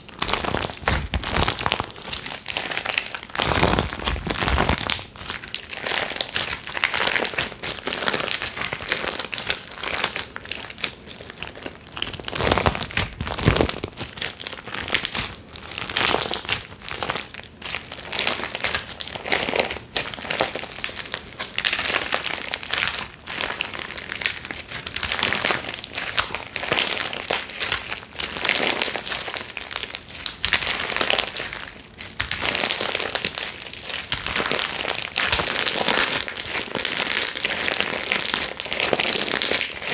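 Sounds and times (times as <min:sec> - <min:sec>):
hands squishing slime: 0:00.0 - 0:39.9.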